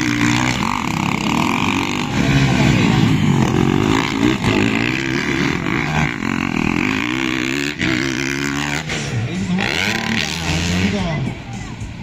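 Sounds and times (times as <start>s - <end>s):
motocross engine revving: 0.0s - 12.0s.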